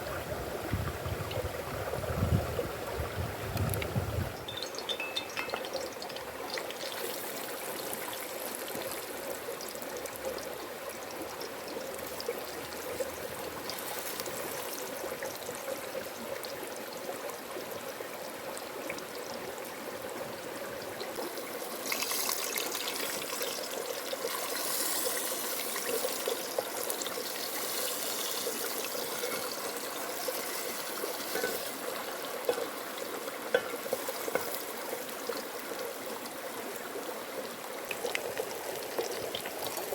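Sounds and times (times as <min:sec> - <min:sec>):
chicken sizzling in hot oil: 0:04.4 - 0:16.7, 0:21.2 - 0:36.1.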